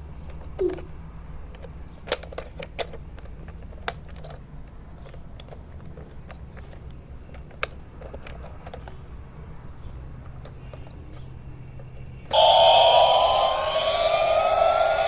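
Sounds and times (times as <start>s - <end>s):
electronic toy with rising whine: 12.3s - 15.0s.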